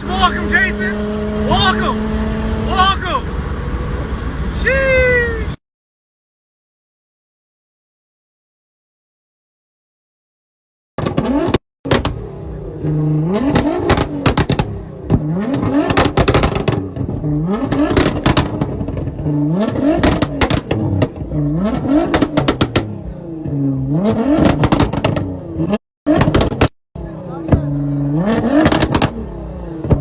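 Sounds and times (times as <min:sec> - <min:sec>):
car engine revving: 0:00.0 - 0:04.6, 0:11.0 - 0:30.0
exhaust popping: 0:11.0 - 0:30.0.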